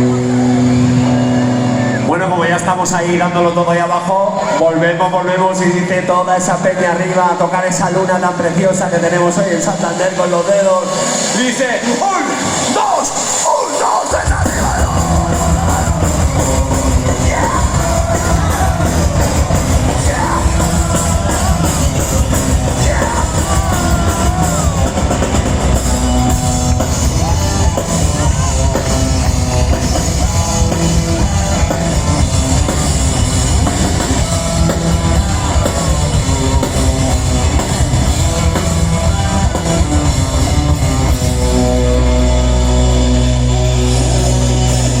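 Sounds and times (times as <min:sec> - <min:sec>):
guitars: 0:00.0 - 0:03.0, 0:12.4 - 0:45.0
drum kit: 0:09.6 - 0:45.0
person singing: 0:14.2 - 0:29.7.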